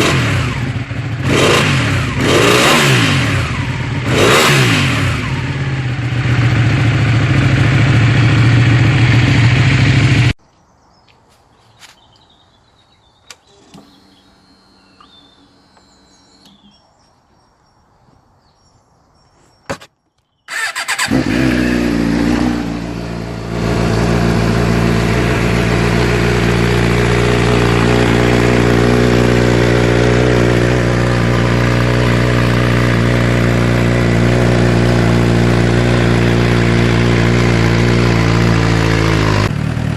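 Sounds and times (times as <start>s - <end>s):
motorcycle engine running loudly: 0.0s - 10.4s, 20.5s - 39.9s
motorcycle engine starting and idling: 0.0s - 10.4s, 13.2s - 16.8s, 20.5s - 39.9s.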